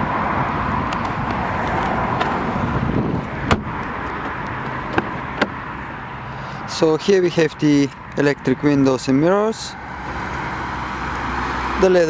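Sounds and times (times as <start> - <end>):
outdoor traffic noise: 0.0 - 12.0
car door clicks and knock: 0.9 - 5.8.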